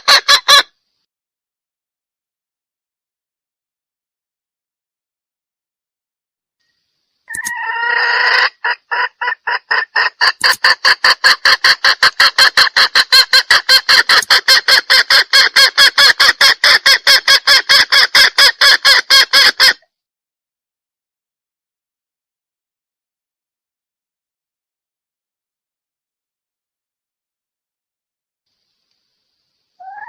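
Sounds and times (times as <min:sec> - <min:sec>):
hen calling: 0:00.0 - 0:00.7, 0:07.3 - 0:19.8, 0:29.7 - 0:30.0
hen clucking rapidly: 0:00.0 - 0:00.7, 0:07.3 - 0:19.8, 0:29.8 - 0:30.0.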